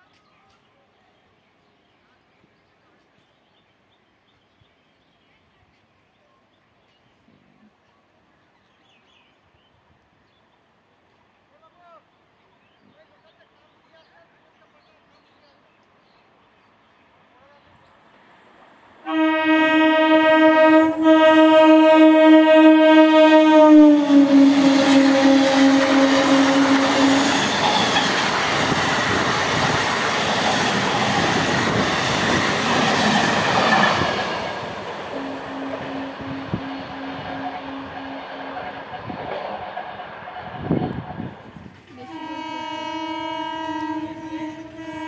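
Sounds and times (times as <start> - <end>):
train horn: 19.0 - 28.3, 35.0 - 39.4, 41.9 - 45.0
train wheels clattering on rails: 27.0 - 35.1.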